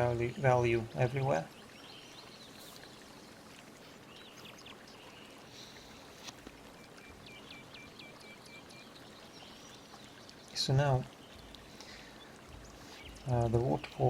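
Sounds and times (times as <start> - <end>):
faint background hiss: 0.0 - 14.0
bird chirps: 6.8 - 14.0.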